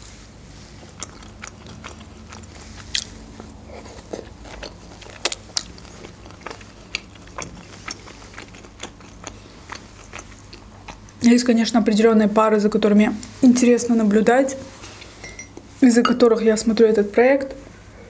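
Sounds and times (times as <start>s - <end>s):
wet chewing smacks: 0.6s - 11.3s.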